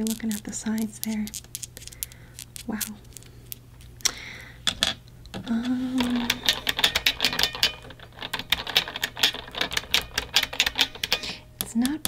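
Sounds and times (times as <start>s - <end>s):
mechanical keyboard typing: 6.0s - 12.0s.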